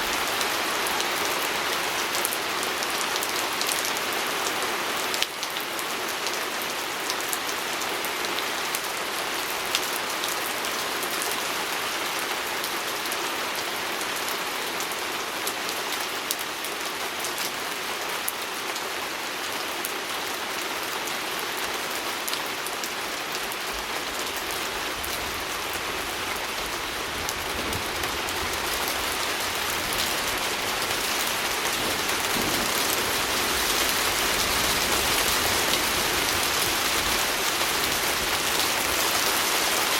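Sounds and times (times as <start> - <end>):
rain pattering on window: 24.4 - 39.9.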